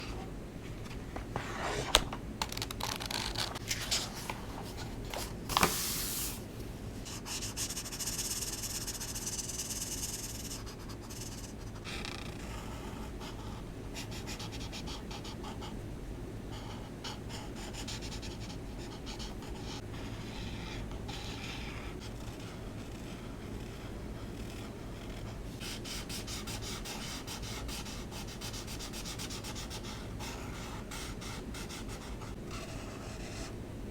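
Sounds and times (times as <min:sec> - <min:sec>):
markers stroking on paper: 0:07.1 - 0:12.3.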